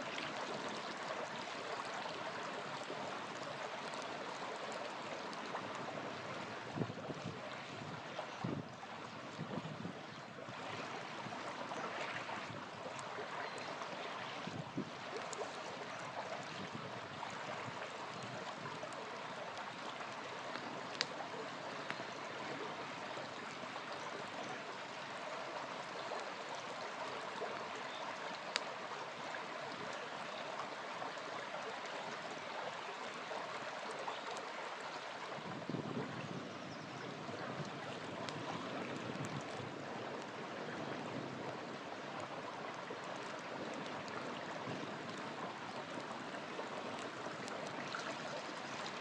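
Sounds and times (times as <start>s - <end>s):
river water babbling: 0.0s - 49.0s
campfire crackling pops: 20.4s - 22.1s.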